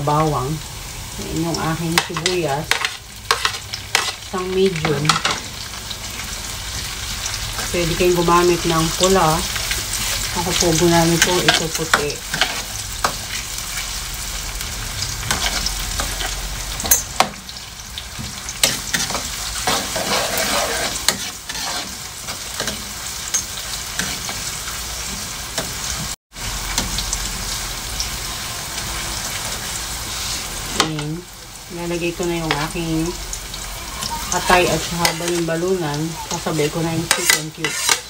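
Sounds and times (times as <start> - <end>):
garlic and onion sizzling in oil: 0.0 - 38.0
metal spatula scraping a pan: 2.0 - 5.4, 9.0 - 13.5, 15.2 - 17.4, 18.6 - 24.5, 34.0 - 38.0.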